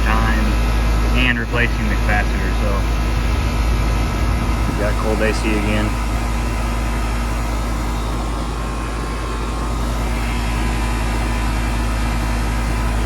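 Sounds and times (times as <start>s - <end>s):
air conditioner fan blowing: 0.0s - 13.0s
compressor motor hum: 0.0s - 13.0s.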